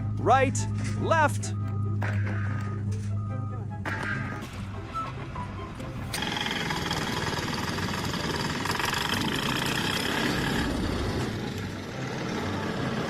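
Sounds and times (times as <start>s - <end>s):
machine engine running with rattling: 6.0s - 13.0s.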